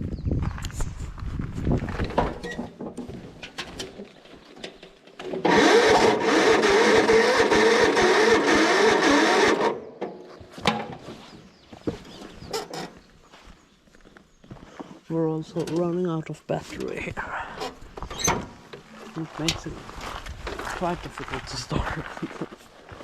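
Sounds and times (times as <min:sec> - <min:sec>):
electric starter cranking engine: 0:05.3 - 0:10.0.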